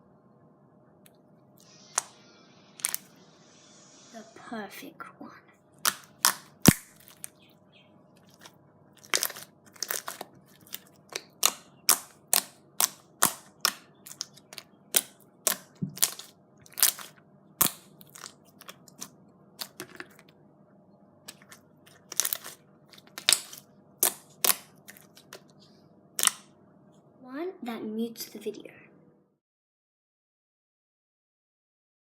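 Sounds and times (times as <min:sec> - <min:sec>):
finger poking sticky slime: 0:11.1 - 0:18.3.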